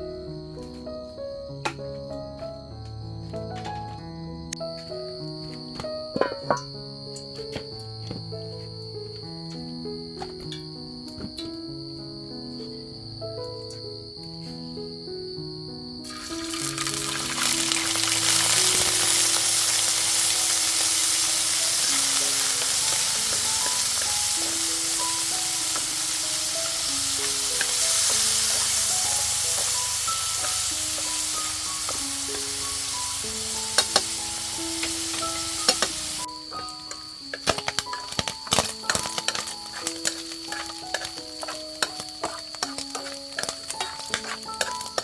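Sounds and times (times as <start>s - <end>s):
food frying in hot oil: 16.1s - 45.0s.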